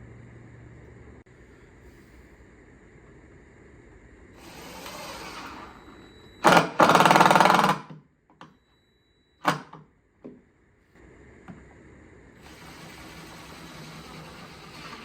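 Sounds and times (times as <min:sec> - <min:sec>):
cordless drill driving screw: 0:04.4 - 0:08.0, 0:12.5 - 0:15.0.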